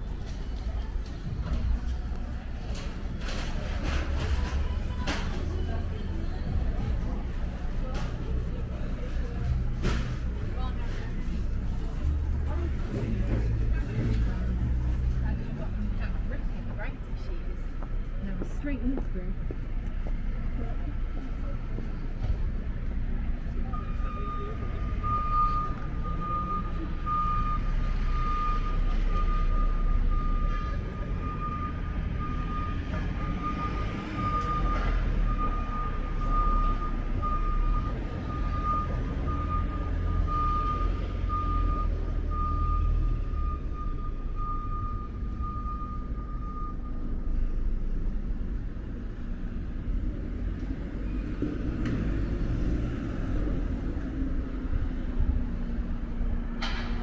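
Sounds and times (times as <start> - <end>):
deep engine rumble: 0.0 - 57.0
vehicle reversing alarm beeping: 21.1 - 48.0.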